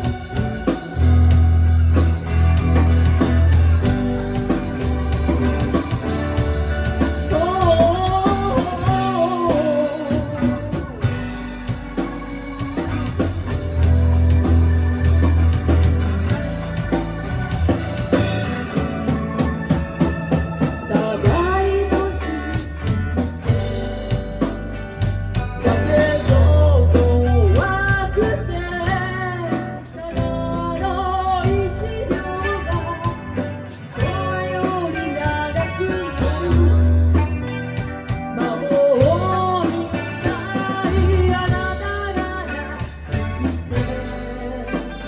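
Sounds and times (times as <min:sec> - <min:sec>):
bending sliding lead melody: 0:00.0 - 0:26.8
live band playing instrumental: 0:00.0 - 0:45.0.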